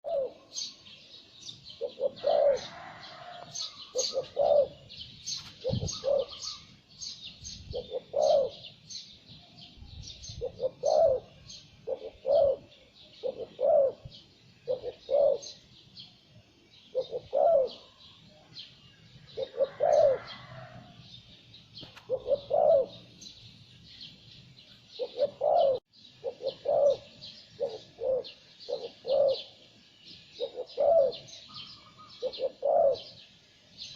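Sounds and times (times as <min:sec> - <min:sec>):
dove cooing: 0:00.0 - 0:00.7, 0:01.8 - 0:06.7, 0:07.6 - 0:08.8, 0:10.3 - 0:15.6, 0:16.9 - 0:18.1, 0:19.2 - 0:21.0, 0:21.9 - 0:23.2, 0:24.9 - 0:33.3
small birds chirping: 0:00.0 - 0:33.9.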